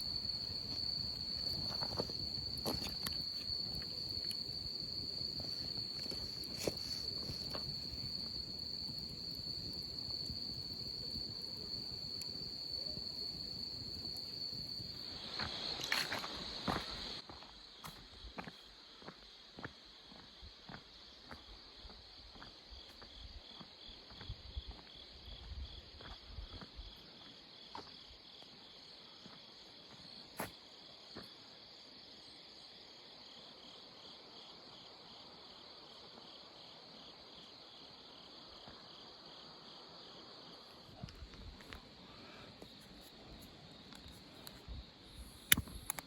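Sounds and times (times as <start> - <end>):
crickets chirping: 0.0 - 46.0.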